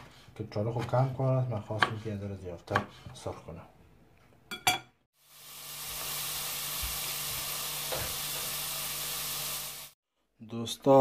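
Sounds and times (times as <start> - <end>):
potatoes sizzling in hot oil: 5.2 - 10.0.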